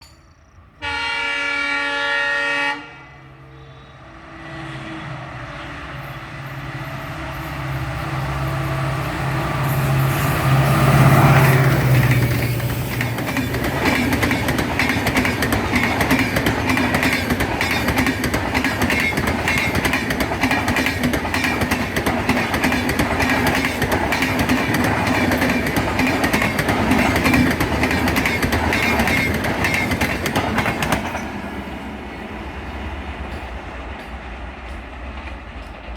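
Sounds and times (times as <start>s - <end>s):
locomotive horn: 0.8s - 5.4s
wagons clickety-clack on rails: 6.0s - 31.5s, 33.2s - 35.9s.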